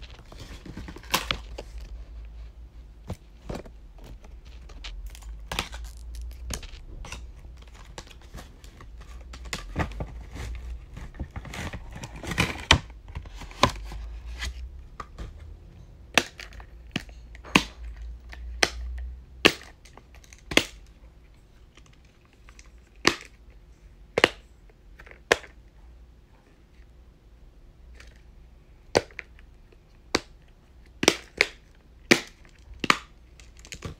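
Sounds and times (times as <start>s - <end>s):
packaging crinkling and tearing: 0.0s - 2.3s, 3.5s - 14.6s.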